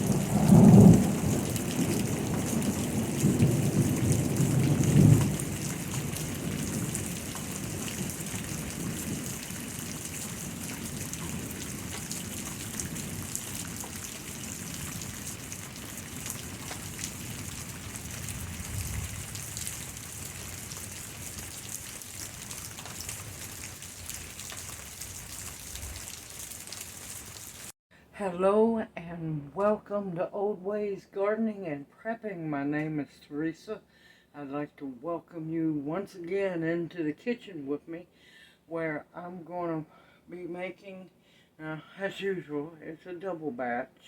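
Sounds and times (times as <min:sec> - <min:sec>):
thunder rumbling: 0:00.0 - 0:23.6
steady rain falling: 0:00.0 - 0:27.8.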